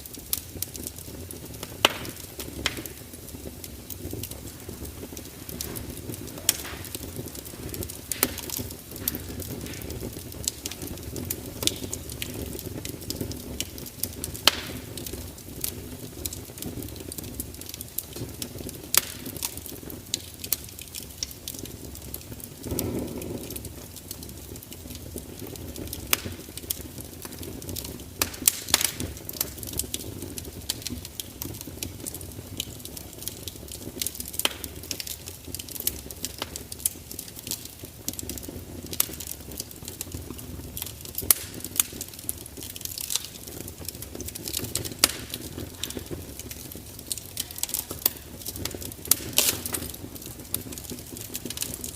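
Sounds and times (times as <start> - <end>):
fire crackling and popping: 0.0 - 51.9
fire rumbling: 0.0 - 51.9
fire whoosh: 0.1 - 17.3, 21.4 - 32.1.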